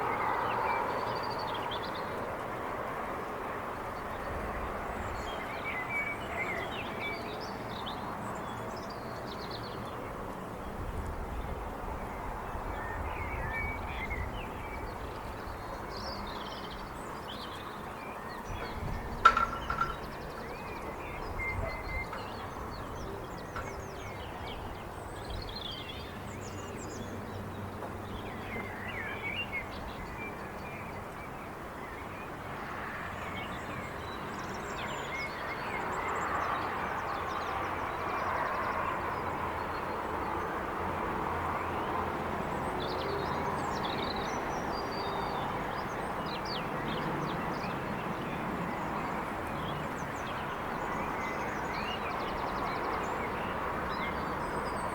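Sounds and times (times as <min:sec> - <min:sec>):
distant traffic noise: 0:00.0 - 0:54.9
bird calls and chirps: 0:04.0 - 0:38.9, 0:42.6 - 0:54.9.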